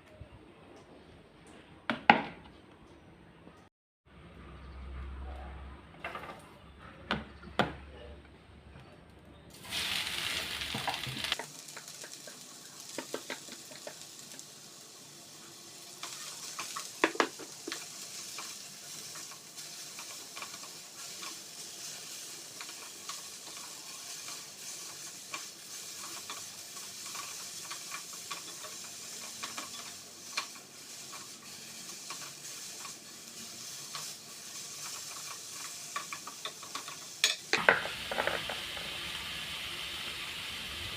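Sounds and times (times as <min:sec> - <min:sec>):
food sizzling in hot oil: 0:09.5 - 0:40.9.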